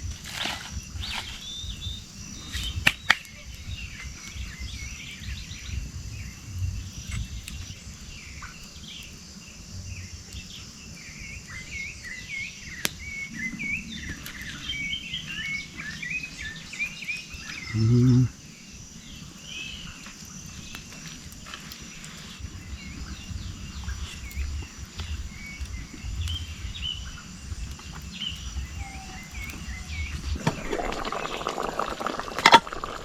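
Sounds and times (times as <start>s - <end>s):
small birds chirping: 0.0s - 33.0s
sharp cracks: 27.6s - 33.0s.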